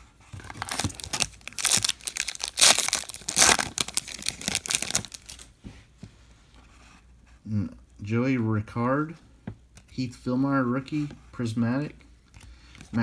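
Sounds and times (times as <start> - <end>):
foil wrapper tearing and crinkling: 0.4 - 5.5.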